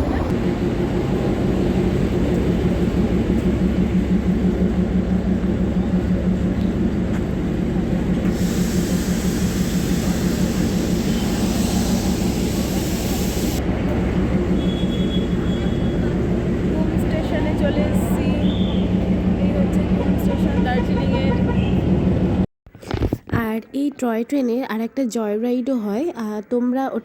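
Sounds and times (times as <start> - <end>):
train low rumble: 0.0 - 22.5
hiss: 8.3 - 13.6.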